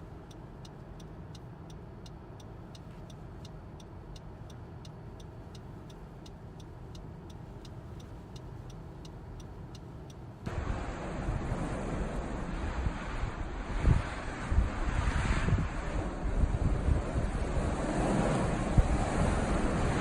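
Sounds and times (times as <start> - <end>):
turn signal relay clicking: 0.0 - 10.4
car rumbling: 0.0 - 20.0
wind rushing: 10.5 - 20.0.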